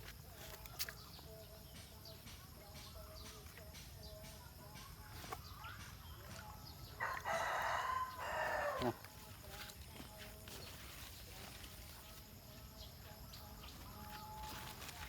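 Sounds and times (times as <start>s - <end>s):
rooster crowing: 7.0s - 9.0s.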